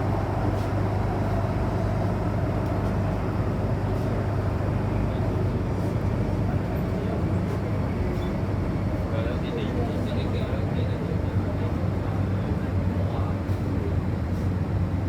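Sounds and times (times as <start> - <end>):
train wheels rumbling on track: 0.0 - 6.6.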